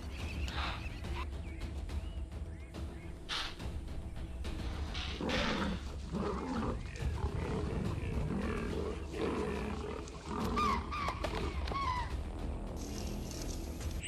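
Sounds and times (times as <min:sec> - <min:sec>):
music with low drone: 0:00.0 - 0:14.0
leopard growling and snarling: 0:04.5 - 0:12.3.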